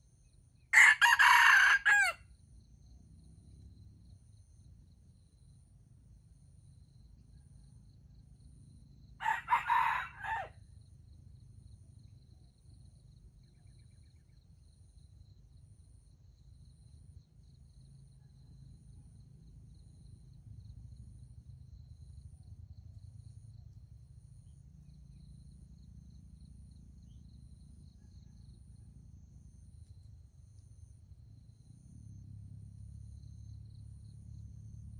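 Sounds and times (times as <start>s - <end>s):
rooster crowing: 0.8s - 2.2s, 9.2s - 10.6s
faint low rumble: 2.6s - 9.2s, 10.6s - 34.9s.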